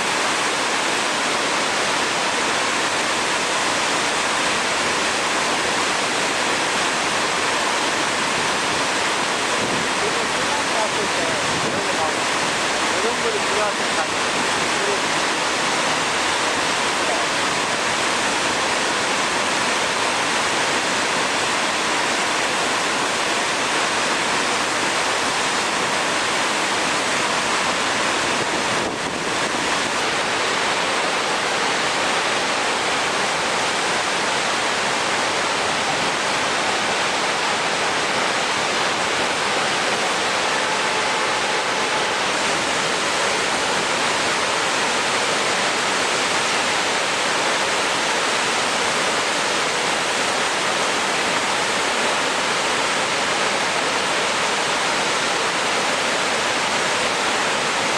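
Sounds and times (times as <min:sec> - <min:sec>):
loud rush of water: 0:00.0 - 0:57.9.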